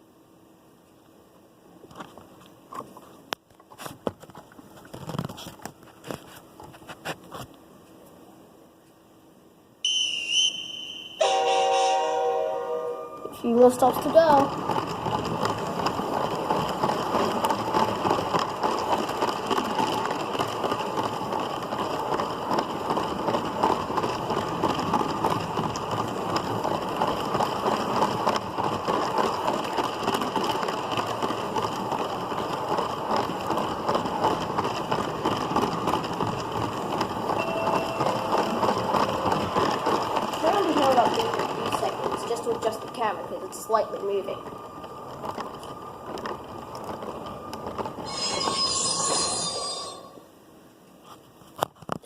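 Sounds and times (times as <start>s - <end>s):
toy train wheels clattering: 13.4s - 50.2s.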